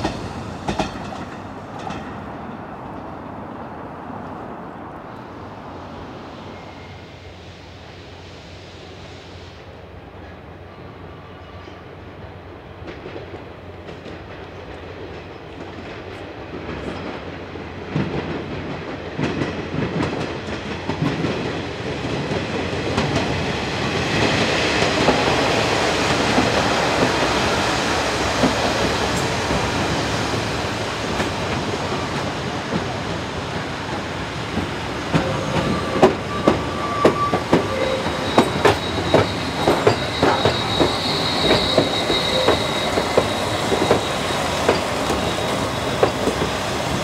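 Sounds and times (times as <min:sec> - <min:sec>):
clatter of train wheels: 0:00.0 - 0:03.1, 0:12.8 - 0:47.0
steam train passing: 0:00.0 - 0:47.0.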